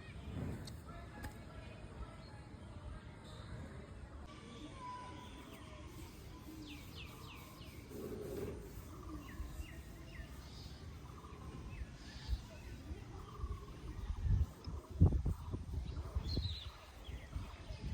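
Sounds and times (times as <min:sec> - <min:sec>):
small birds chirping: 0:04.8 - 0:17.9.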